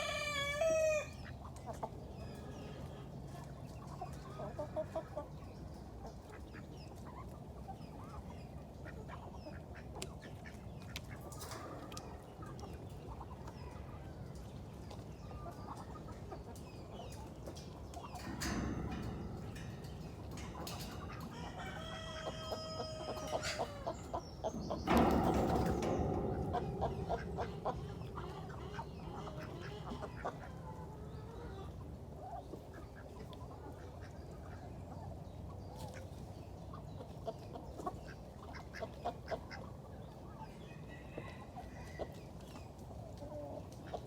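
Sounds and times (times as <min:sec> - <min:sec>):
drawn-out chicken call: 0:00.0 - 0:01.2, 0:21.3 - 0:24.2
chickens clucking: 0:00.0 - 0:44.0.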